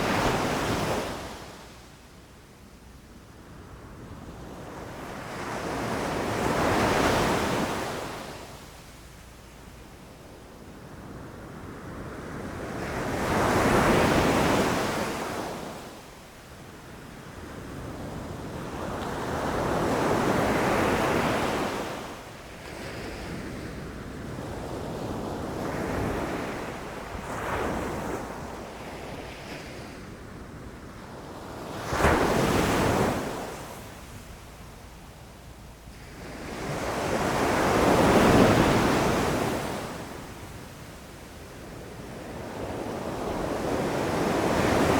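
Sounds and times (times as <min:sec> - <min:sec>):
ocean waves breaking on shore: 0:17.2 - 0:35.0, 0:35.8 - 0:40.8, 0:41.7 - 0:44.9.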